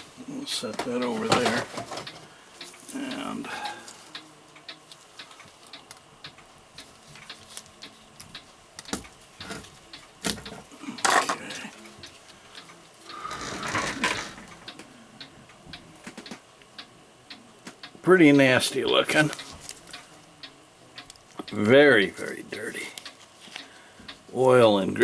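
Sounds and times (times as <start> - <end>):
mechanical clock ticking: 0.0 - 25.0.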